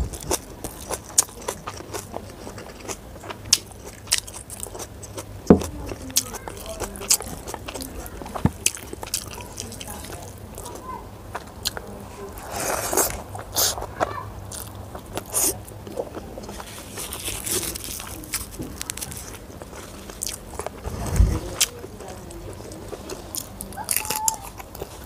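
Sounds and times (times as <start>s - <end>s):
person chewing and crunching food: 0.0s - 20.8s, 21.6s - 25.0s
dull low thump: 5.5s - 5.8s.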